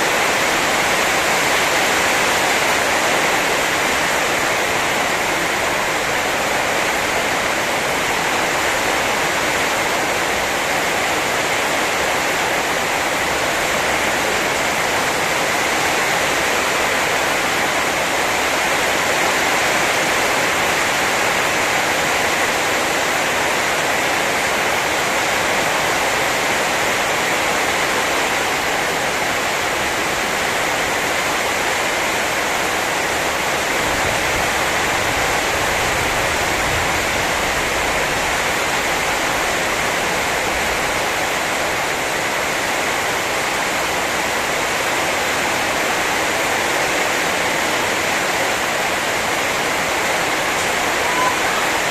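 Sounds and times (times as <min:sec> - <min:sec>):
heavy rain pouring: 0:00.0 - 0:51.9.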